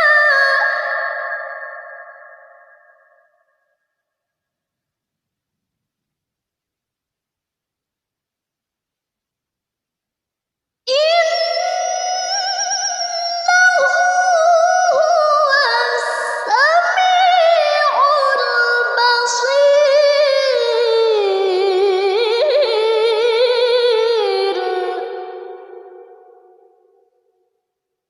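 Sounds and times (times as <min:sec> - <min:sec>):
woman chanting recitation: 0:00.0 - 0:01.5, 0:10.9 - 0:26.2.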